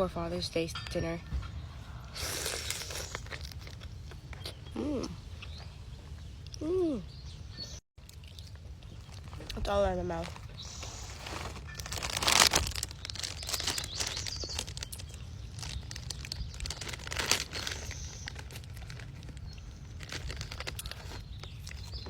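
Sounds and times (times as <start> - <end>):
chewing and sucking: 2.0 - 4.6.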